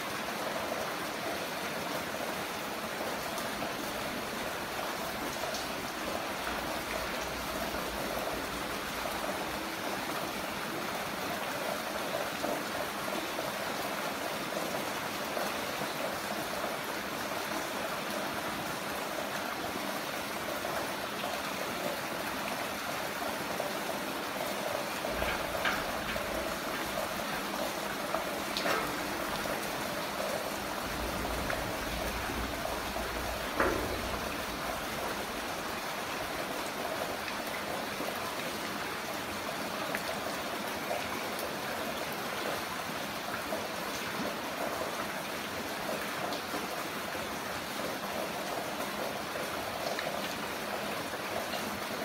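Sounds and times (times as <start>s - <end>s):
heavy rain falling: 0.0s - 52.0s
water drips splashing: 24.8s - 37.6s.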